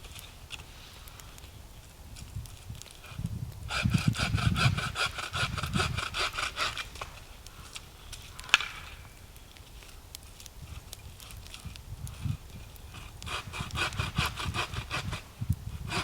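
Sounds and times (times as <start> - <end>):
hand saw cutting wood: 3.7 - 7.2, 12.9 - 16.0.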